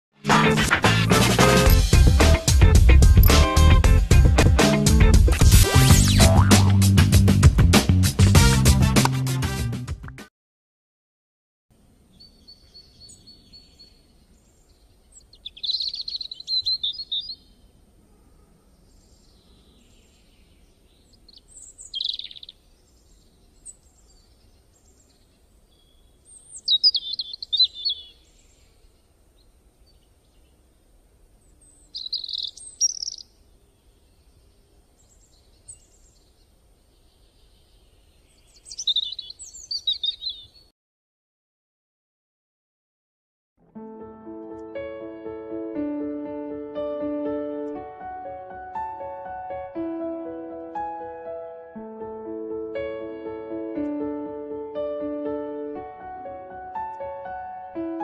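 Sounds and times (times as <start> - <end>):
bird chirping: 12.1 - 40.7.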